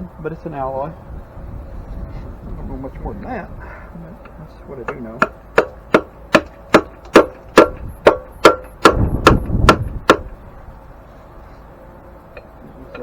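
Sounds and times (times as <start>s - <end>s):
hammer blows on metal: 4.8s - 10.4s.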